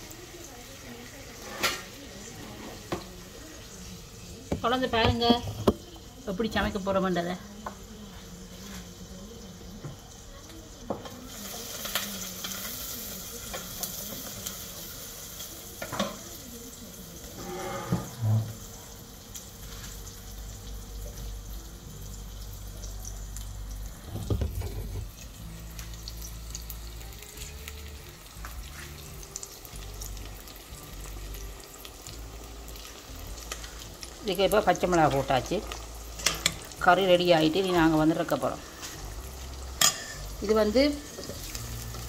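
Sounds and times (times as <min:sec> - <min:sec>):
food sizzling in oil: 0:00.0 - 0:42.0
metal clinking against pot: 0:39.8 - 0:40.2.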